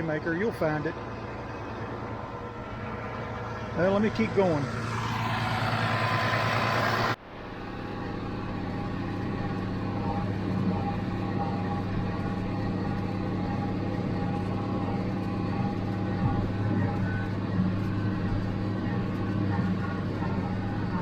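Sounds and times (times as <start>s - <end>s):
faint steady whine: 0.0s - 21.0s
tractor diesel engine running: 0.0s - 21.0s
rushing noise: 1.9s - 9.9s.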